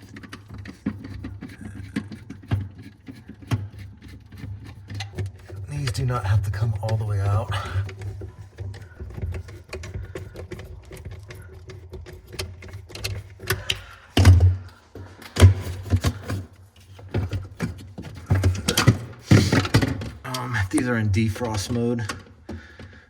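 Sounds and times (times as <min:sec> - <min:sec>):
clicks and clatters of parts handled: 0:06.8 - 0:23.0.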